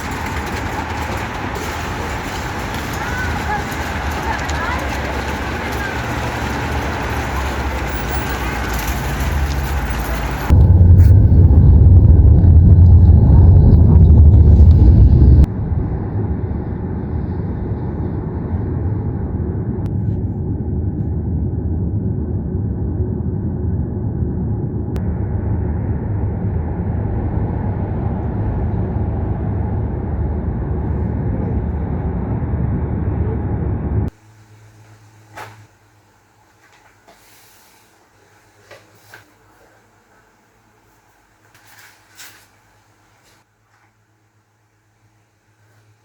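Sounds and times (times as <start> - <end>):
vehicle engine rumbling: 0.0 - 35.8.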